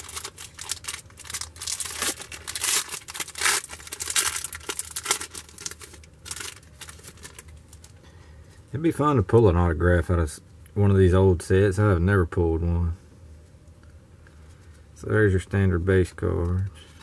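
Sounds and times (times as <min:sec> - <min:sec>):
wrapper tearing and crinkling: 0:00.0 - 0:08.0.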